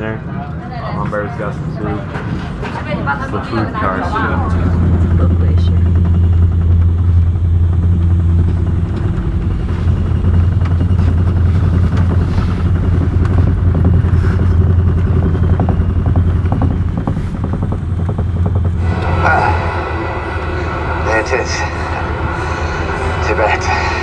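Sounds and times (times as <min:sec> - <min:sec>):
train rumbling: 0:00.0 - 0:24.0
light rapid clatter: 0:04.5 - 0:18.8.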